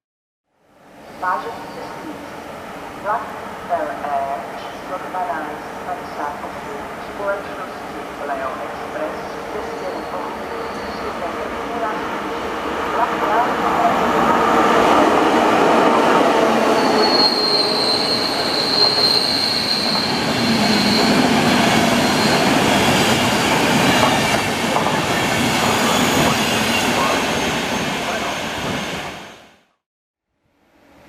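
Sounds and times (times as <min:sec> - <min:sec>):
high wheel squeal: 0:09.7 - 0:11.3, 0:16.7 - 0:24.2
train wheels clattering on rails: 0:18.2 - 0:26.9.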